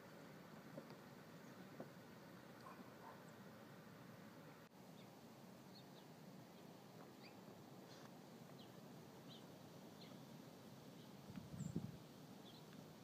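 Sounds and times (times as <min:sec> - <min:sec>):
faint steady hiss: 0:00.0 - 0:13.0
faint bird chirps: 0:04.9 - 0:07.5, 0:08.5 - 0:10.3, 0:10.9 - 0:12.8.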